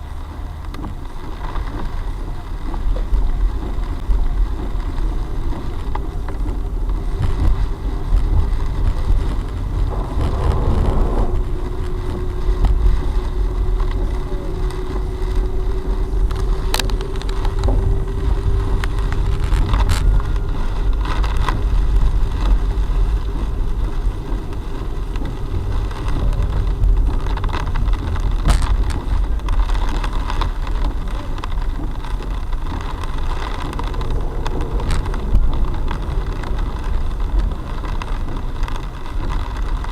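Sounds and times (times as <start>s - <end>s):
steady hum: 0.0s - 39.0s
car engine and tyres rumbling: 0.0s - 39.9s.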